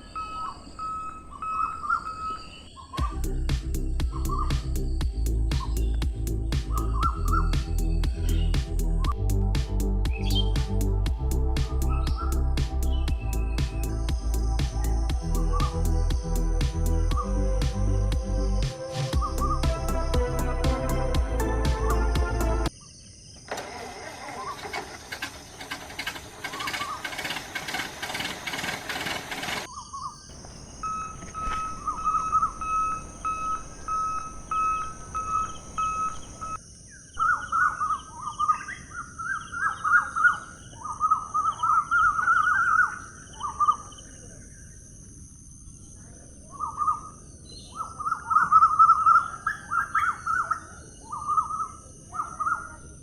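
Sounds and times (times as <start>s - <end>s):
birds chirping: 0.0s - 9.2s, 10.0s - 10.6s, 11.8s - 16.4s, 25.2s - 36.6s
dense rhythmic sound: 19.2s - 22.7s
steady high hiss: 30.3s - 36.6s.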